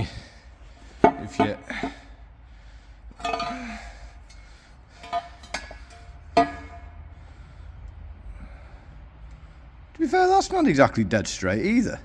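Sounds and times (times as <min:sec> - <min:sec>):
steel plates clanking together: 0:03.1 - 0:07.0.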